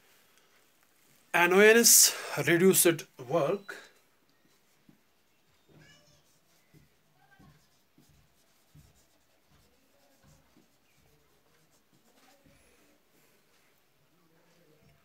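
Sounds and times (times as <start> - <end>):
pen scratching while writing: 6.1 - 12.5.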